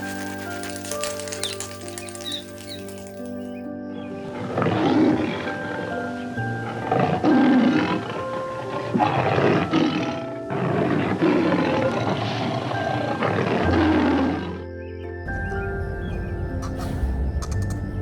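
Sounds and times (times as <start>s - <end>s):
rough animal calls: 0.0s - 3.6s
background music held notes: 0.0s - 18.0s.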